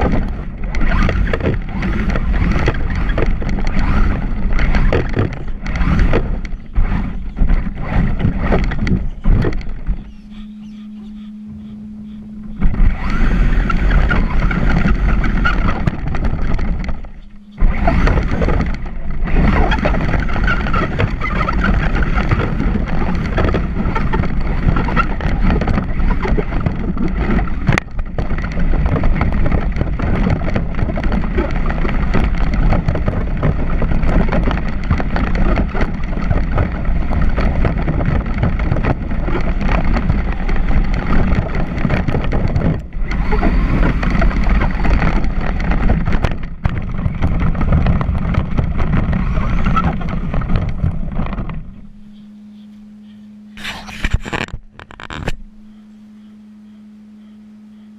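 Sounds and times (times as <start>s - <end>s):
electric rc truck driving: 0.0s - 52.3s, 53.5s - 57.9s.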